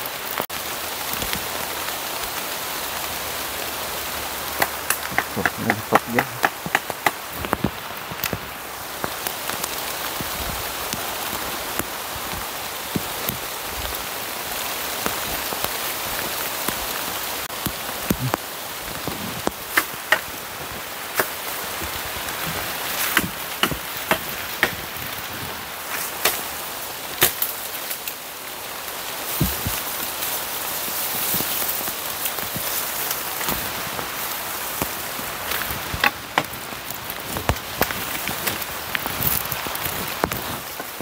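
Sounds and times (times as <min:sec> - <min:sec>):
heavy rain: 0:00.0 - 0:41.0
sharp taps: 0:04.6 - 0:07.2.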